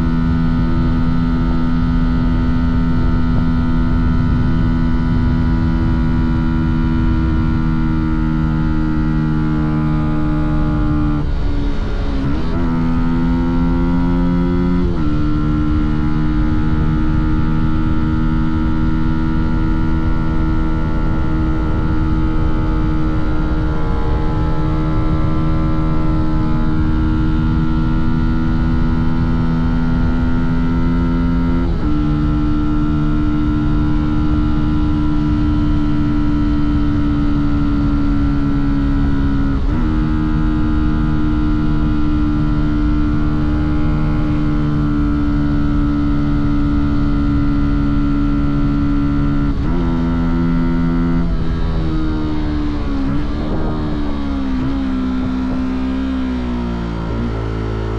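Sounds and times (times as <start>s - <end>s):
motorcycle engine cruising: 0.0s - 57.9s
road and wind rumble: 0.0s - 57.9s.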